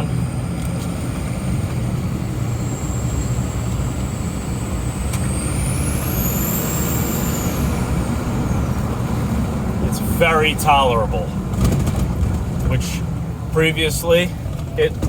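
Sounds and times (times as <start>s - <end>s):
diesel truck engine pulling: 0.0s - 15.0s
high thin turbo whistle: 2.7s - 8.7s.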